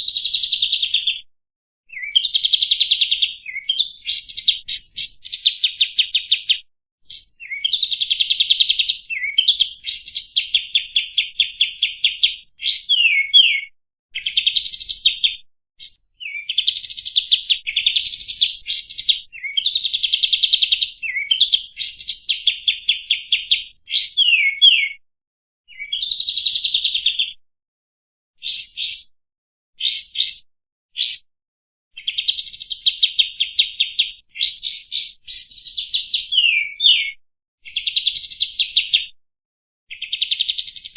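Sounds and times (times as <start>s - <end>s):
sharp down-slurred bird notes: 11.5s - 15.3s, 23.2s - 25.0s, 36.2s - 37.1s
bulbul singing trilled chatter: 28.5s - 29.1s, 29.9s - 30.4s.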